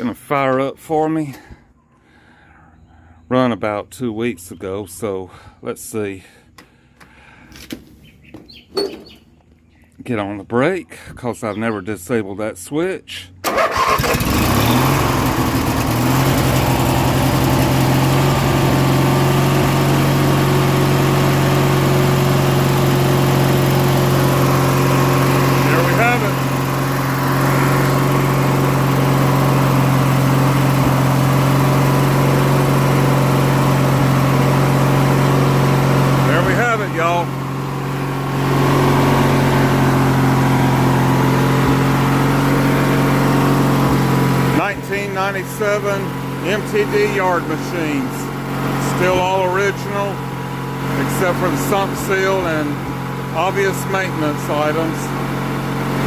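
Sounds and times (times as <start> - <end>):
lawn tractor engine idling: 13.4 - 56.0.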